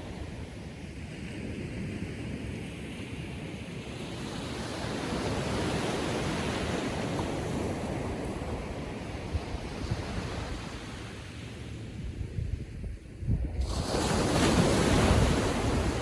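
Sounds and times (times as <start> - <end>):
small waves washing up beach: 13.5 - 16.0.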